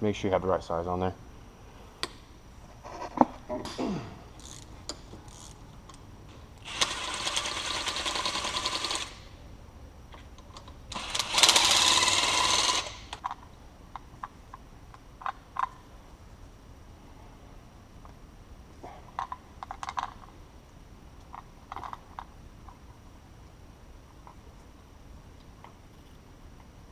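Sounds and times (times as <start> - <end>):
power tool rattling: 6.6 - 9.3, 10.9 - 13.2.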